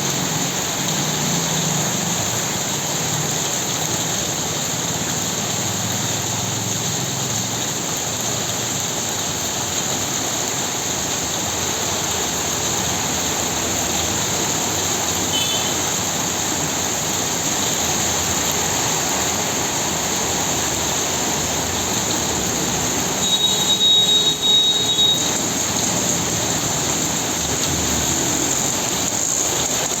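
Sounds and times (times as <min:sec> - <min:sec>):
heavy rain falling: 0:00.0 - 0:30.0
loud high tone: 0:23.2 - 0:25.4.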